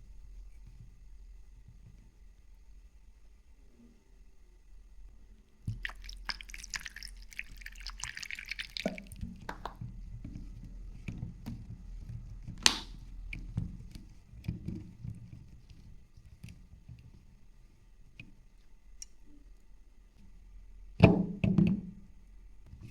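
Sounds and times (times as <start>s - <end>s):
liquid dripping and splashing: 5.7s - 9.8s
small wet crackles: 5.7s - 9.8s
sharp tap: 12.6s - 13.0s.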